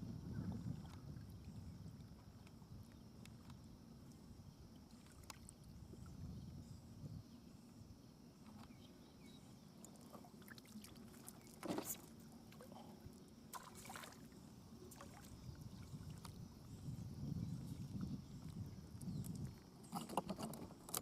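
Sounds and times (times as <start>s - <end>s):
faint wind: 0.0s - 21.0s
small waves lapping: 9.8s - 16.8s
water splashes: 10.0s - 16.4s.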